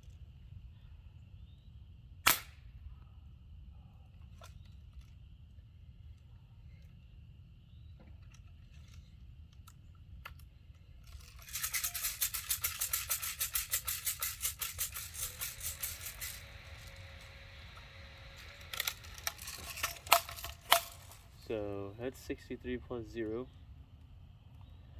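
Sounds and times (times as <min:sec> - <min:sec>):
louder single clicks: 0:02.3 - 0:02.5
rapid rattle of sharp clicks: 0:11.0 - 0:21.6.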